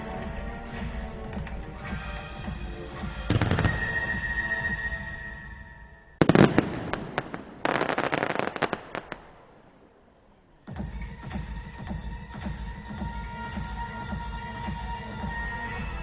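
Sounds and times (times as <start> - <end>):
music soundtrack: 0.0 - 16.0
fireworks banging and crackling: 3.1 - 5.2, 6.2 - 10.0.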